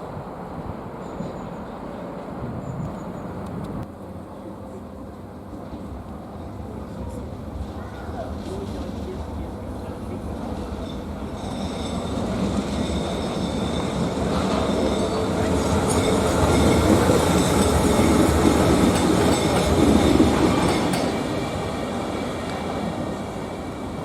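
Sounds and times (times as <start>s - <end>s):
train running on rails: 0.0s - 24.0s
high wheel squeal: 10.7s - 16.2s.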